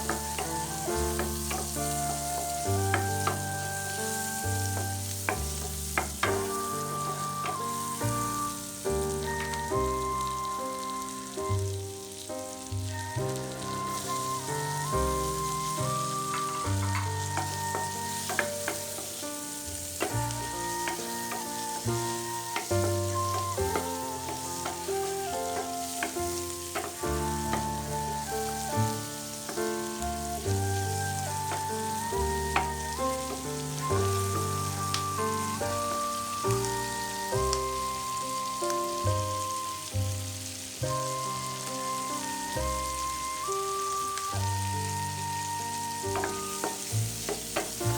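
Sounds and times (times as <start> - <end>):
background music: 0.0 - 47.9
food sizzling in a frying pan: 0.0 - 47.9
utensils clicking: 16.3 - 29.8.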